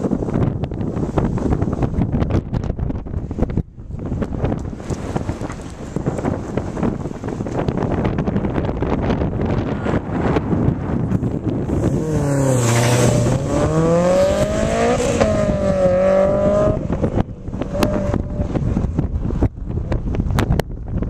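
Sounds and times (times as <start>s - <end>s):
wind buffeting microphone: 0.0s - 21.0s
car engine revving past: 11.7s - 17.0s.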